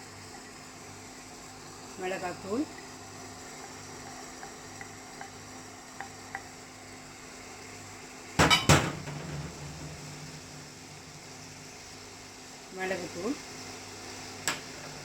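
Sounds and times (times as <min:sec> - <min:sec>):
spoon knocking on metal pan: 0:08.4 - 0:10.0.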